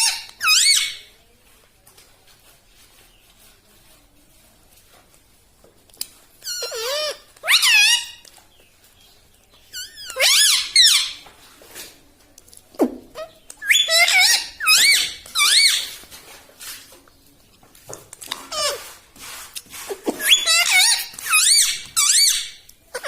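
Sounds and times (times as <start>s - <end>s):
parakeet warbling squeaky calls: 0.0s - 1.0s, 6.4s - 8.2s, 9.8s - 11.2s, 13.2s - 16.0s, 20.2s - 23.0s.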